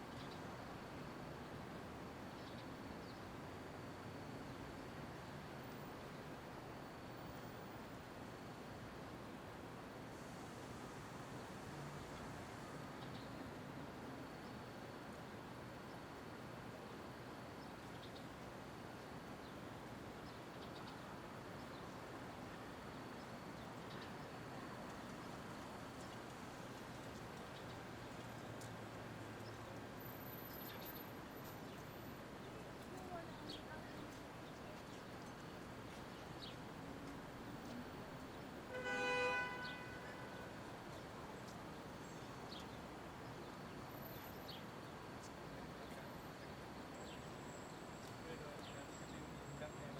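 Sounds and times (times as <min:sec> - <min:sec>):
city street noise: 0:00.0 - 0:49.9
distant traffic rumble: 0:10.1 - 0:49.9
car horn toot: 0:38.7 - 0:40.4.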